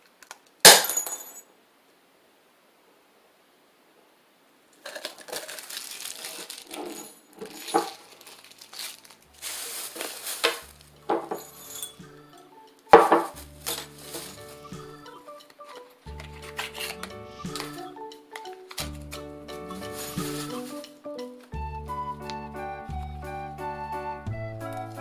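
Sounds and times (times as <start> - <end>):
glass crash: 0.7 - 1.4, 5.0 - 12.0
hard objects clinking and rattling: 4.8 - 12.0, 12.9 - 14.7, 16.1 - 20.9
background music: 8.8 - 25.0.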